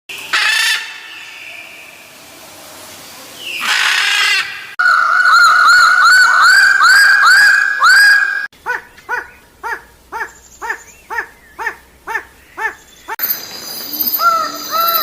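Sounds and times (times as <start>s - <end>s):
harsh raspy bird call: 3.6s - 13.2s, 14.0s - 15.0s
looping whistled bird notes: 12.5s - 15.0s.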